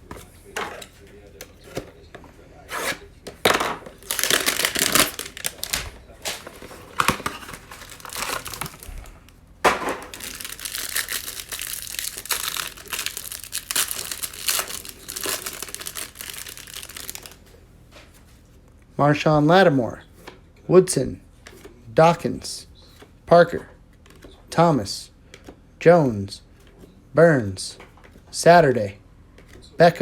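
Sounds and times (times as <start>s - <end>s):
plastic wrapping ripping: 3.9s - 9.2s, 10.0s - 17.4s
plastic wrapping crinkling: 3.9s - 9.3s, 9.9s - 17.4s.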